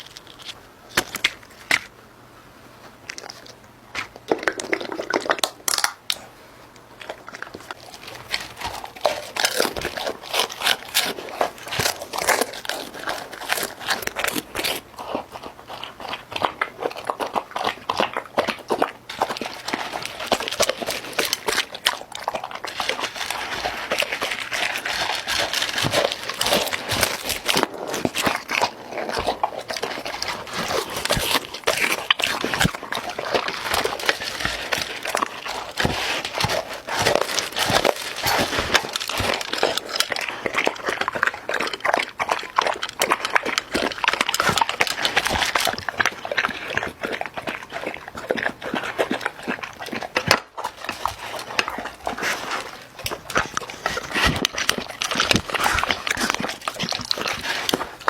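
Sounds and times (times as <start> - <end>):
irregular clicking and crackling: 3.0 - 48.2
dog: 7.0 - 58.0.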